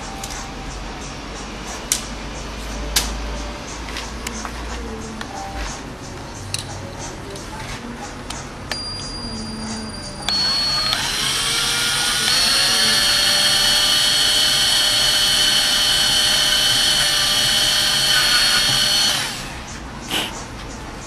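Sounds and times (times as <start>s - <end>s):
power drill drilling: 10.3s - 19.6s.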